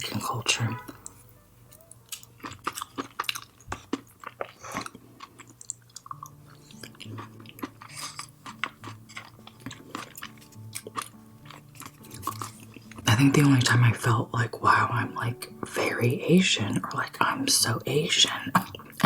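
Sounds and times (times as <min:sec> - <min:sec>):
quiet background music: 0:00.0 - 0:19.0
person chewing food: 0:00.8 - 0:13.1.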